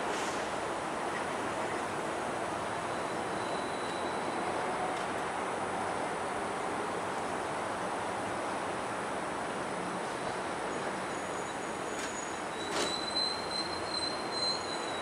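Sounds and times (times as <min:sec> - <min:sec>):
freight train wagons rolling: 0:10.0 - 0:15.0.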